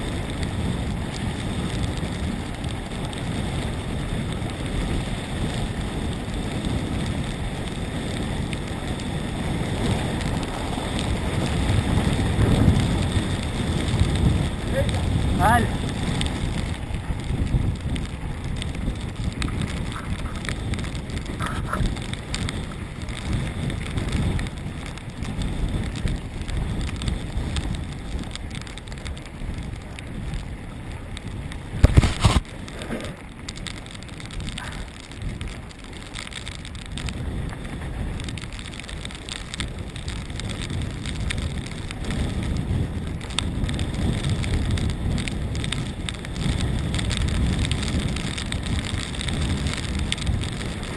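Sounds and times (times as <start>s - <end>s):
bike tyre and rattle noise: 0.0s - 50.9s
wind on microphone: 0.0s - 50.9s.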